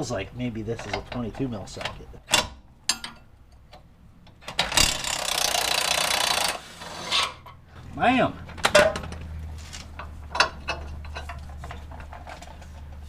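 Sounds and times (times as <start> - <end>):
impact wrench hammering: 4.4 - 6.6.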